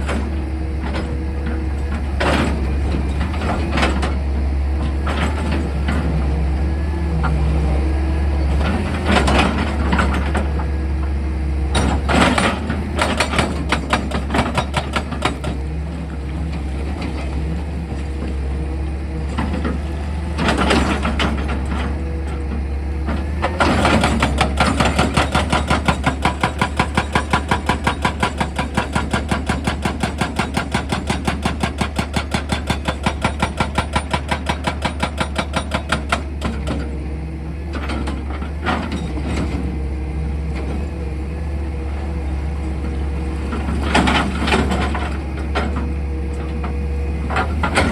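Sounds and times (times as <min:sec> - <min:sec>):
diesel engine humming: 0:00.0 - 0:26.2, 0:36.0 - 0:47.9
rock drill hammering: 0:23.8 - 0:36.4.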